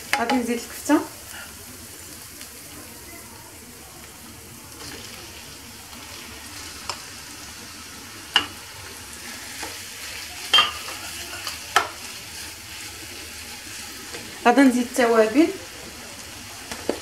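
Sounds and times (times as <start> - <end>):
meat and onions sizzling: 0.0 - 17.0
spatula knocking on bowl and pan: 0.1 - 0.5
spatula scraping and stirring: 8.2 - 14.4.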